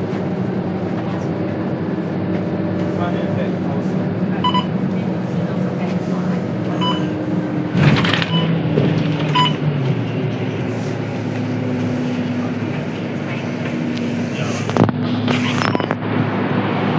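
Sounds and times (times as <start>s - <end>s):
diesel bus engine running: 0.0s - 16.9s
short electronic beeps: 4.4s - 4.7s, 6.8s - 7.2s, 8.3s - 8.6s, 9.3s - 9.6s, 15.6s - 16.0s.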